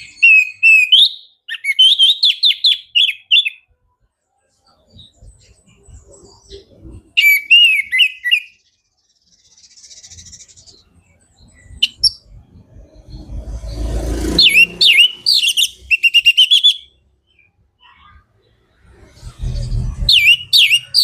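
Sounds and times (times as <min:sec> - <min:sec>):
thrush singing whistled phrases: 0:00.0 - 0:03.7, 0:07.2 - 0:08.6, 0:14.4 - 0:17.9, 0:18.8 - 0:21.0.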